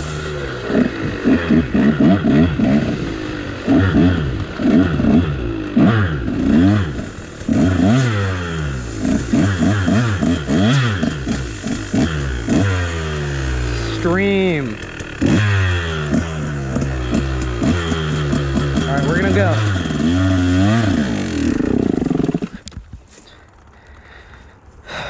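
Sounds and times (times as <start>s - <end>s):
dirt bike engine revving: 0.0s - 22.7s.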